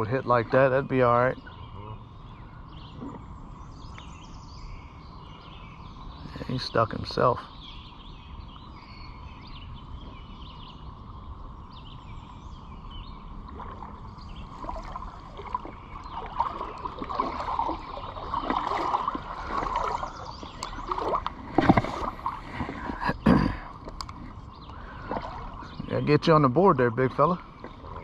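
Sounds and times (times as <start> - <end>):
creek water sloshing and splashing: 12.5 - 28.0.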